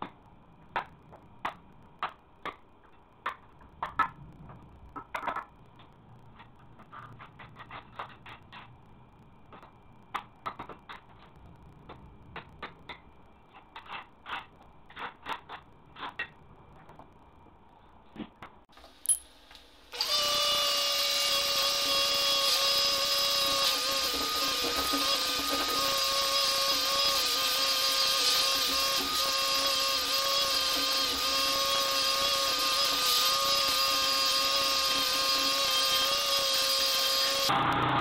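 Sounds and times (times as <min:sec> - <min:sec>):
power tool motor whining: 0:19.9 - 0:38.0.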